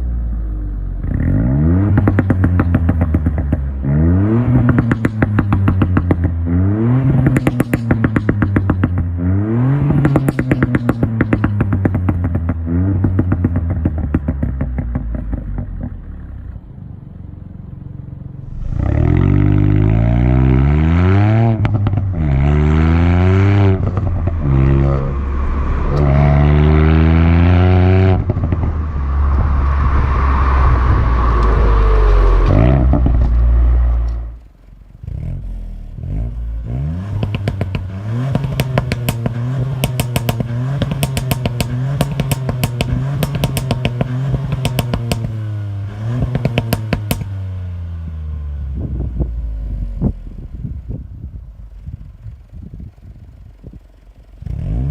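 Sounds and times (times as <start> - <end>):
car engine accelerating: 0.0 - 54.9
exhaust crackles and pops: 1.8 - 3.8, 4.4 - 9.2, 9.9 - 16.6, 21.5 - 47.5.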